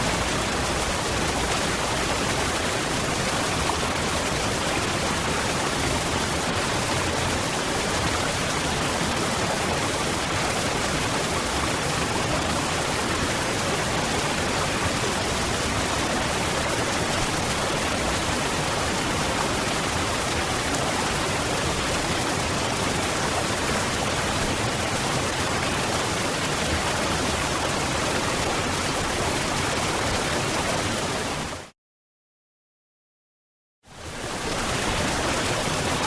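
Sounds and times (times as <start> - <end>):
waterfall rushing: 34.1 - 36.0.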